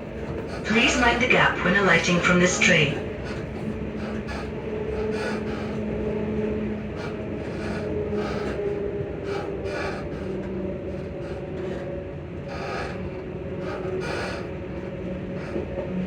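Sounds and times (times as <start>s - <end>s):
train motors whining: 0.6s - 3.0s.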